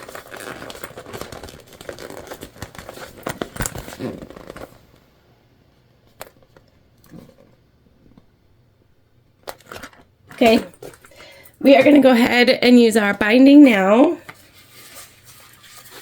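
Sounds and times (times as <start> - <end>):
vinyl bag crinkling and rustling: 0.0 - 5.0, 9.4 - 16.0.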